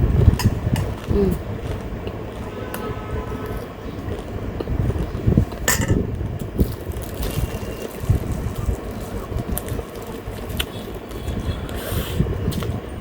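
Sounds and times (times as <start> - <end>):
fan blowing on microphone: 0.0 - 13.0.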